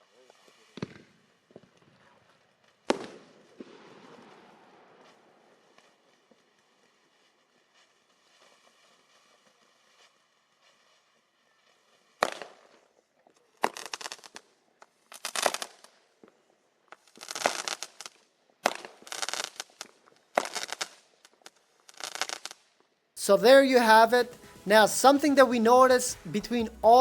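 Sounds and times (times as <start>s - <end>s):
fireworks crackling: 0.4s - 12.9s, 13.6s - 16.0s, 16.8s - 27.0s
fireworks bangs: 2.9s - 6.9s, 23.2s - 27.0s.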